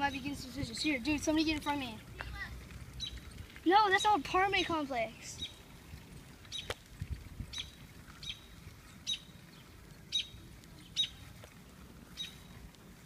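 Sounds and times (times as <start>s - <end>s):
bird chirping: 3.0s - 3.4s, 7.5s - 11.3s.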